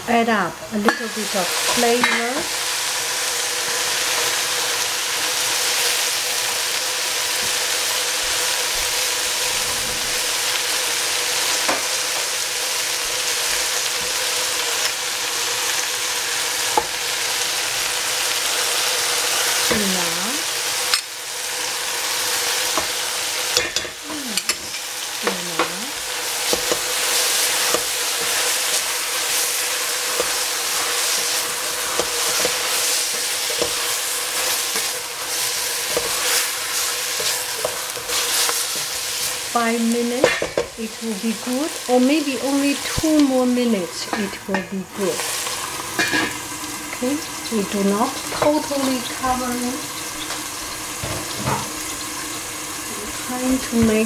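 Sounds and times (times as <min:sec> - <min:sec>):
food frying sizzling hiss: 0:00.0 - 0:54.0.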